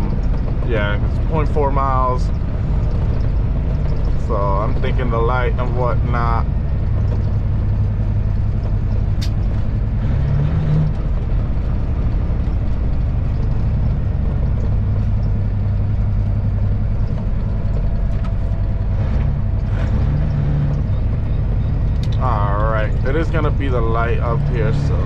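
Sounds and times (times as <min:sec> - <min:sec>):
truck diesel engine hum: 0:00.0 - 0:25.0
sharp click: 0:09.2 - 0:09.6.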